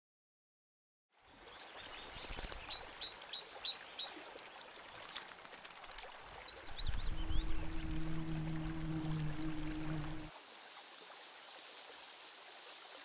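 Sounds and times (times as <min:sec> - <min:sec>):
songbird chirping: 0:06.0 - 0:10.3.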